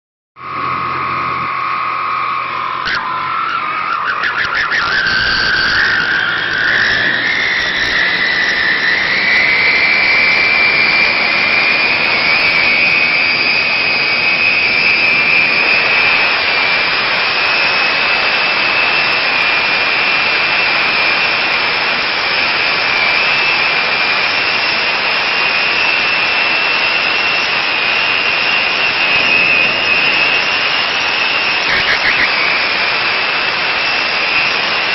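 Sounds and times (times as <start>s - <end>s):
tractor diesel engine under load: 0.4s - 20.8s
high whistling exhaust whine: 0.4s - 34.9s.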